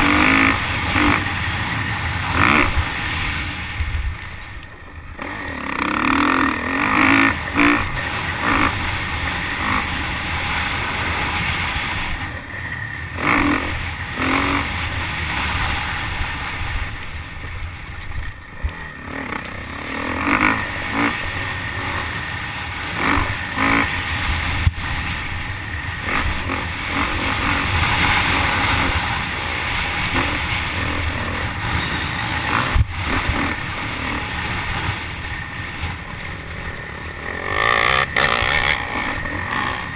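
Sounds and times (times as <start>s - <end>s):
wind rushing over microphone: 0.0s - 5.3s, 23.0s - 36.1s
motocross bike engine revving: 0.0s - 39.9s.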